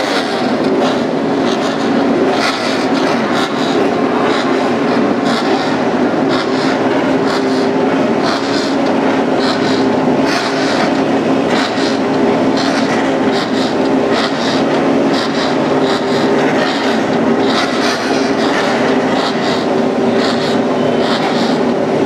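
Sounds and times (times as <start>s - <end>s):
racing motorcycle engines: 0.0s - 22.0s.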